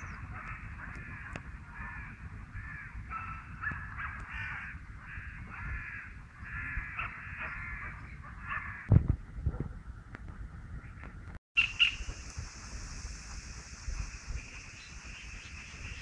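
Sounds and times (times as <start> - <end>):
wind rumble on microphone: 0.0 - 16.0
bird calling: 11.6 - 12.1.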